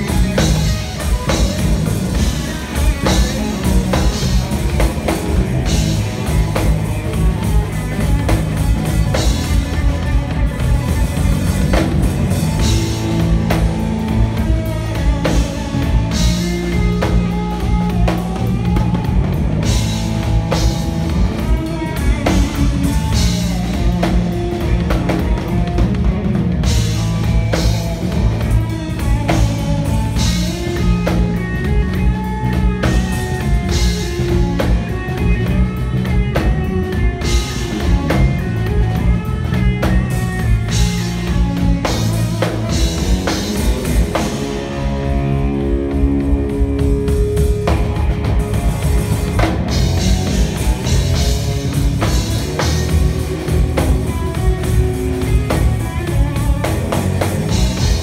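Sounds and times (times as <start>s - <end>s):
drum kit: 0.0s - 58.0s
electric guitar playing: 0.0s - 58.0s
steady low bass notes: 0.0s - 58.0s.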